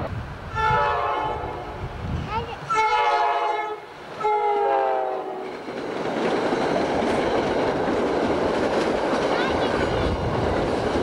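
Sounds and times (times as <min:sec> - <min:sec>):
train cars rushing past: 0:00.0 - 0:11.0
train horn blasts: 0:00.5 - 0:01.9, 0:02.7 - 0:05.5.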